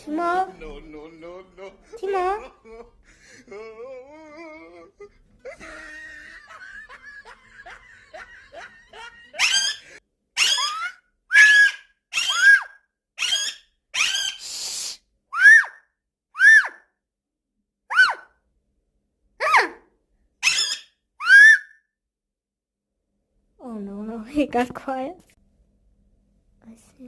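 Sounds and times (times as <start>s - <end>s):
parrot laugh-like chattering: 2.2s - 12.6s
parrot warbling: 9.0s - 14.5s, 15.3s - 15.8s, 16.4s - 16.8s, 17.9s - 18.4s, 19.4s - 21.8s
parrot high-pitched screeches: 9.4s - 15.8s, 16.4s - 16.9s, 17.9s - 18.3s, 20.4s - 21.8s.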